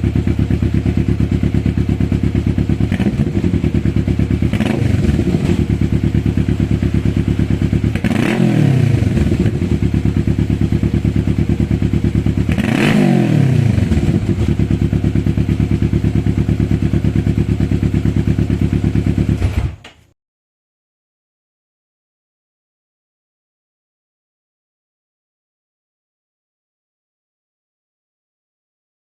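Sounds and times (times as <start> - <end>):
motorcycle engine idling: 0.0 - 19.5.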